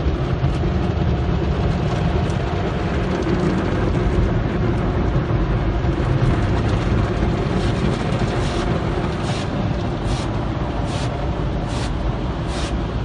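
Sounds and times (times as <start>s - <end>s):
car wash machinery and water: 0.0s - 13.0s
hissing spray bursts: 9.2s - 12.8s.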